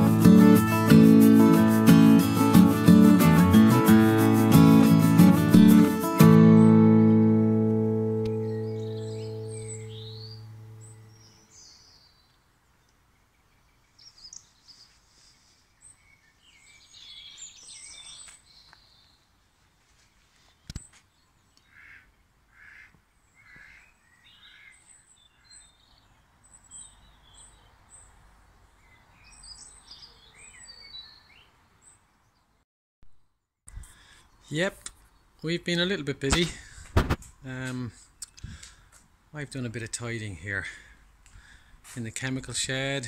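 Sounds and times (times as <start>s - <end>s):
guitar note: 0.0s - 11.2s
outdoor background hiss: 0.0s - 32.6s, 33.3s - 43.0s
songbirds chirping: 0.0s - 32.6s, 33.7s - 43.0s.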